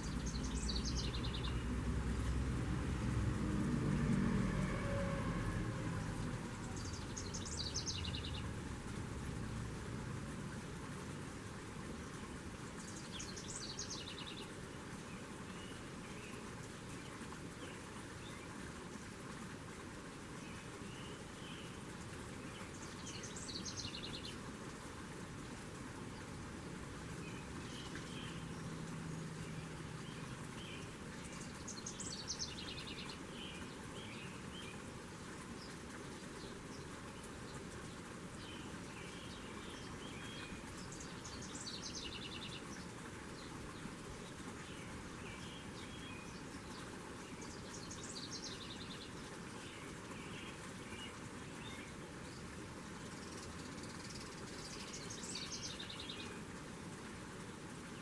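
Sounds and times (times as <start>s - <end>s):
soft bird chirps: 0.0s - 1.7s
outdoor background hiss: 0.0s - 58.0s.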